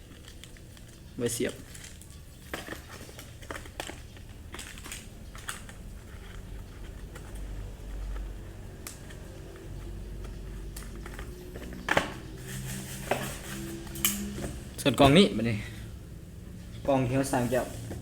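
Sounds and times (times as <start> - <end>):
plastic parts clicking and tapping: 0.0 - 12.4
packaging crinkling: 0.0 - 14.8.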